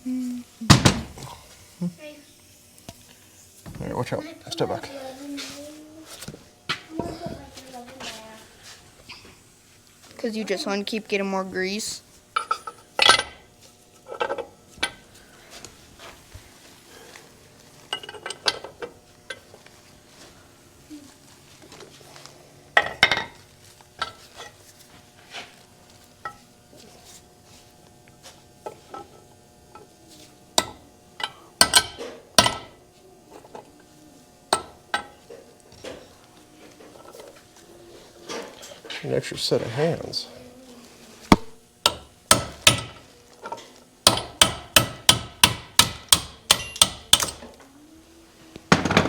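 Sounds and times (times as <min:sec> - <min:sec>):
metal tools clinking and knocking: 0:12.4 - 0:13.4, 0:17.9 - 0:19.5.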